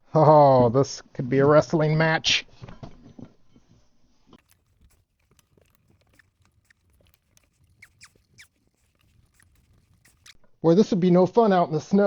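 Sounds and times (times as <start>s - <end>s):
light clicks and scrapes: 4.4s - 10.4s
rubber belt squeaks: 4.4s - 10.4s.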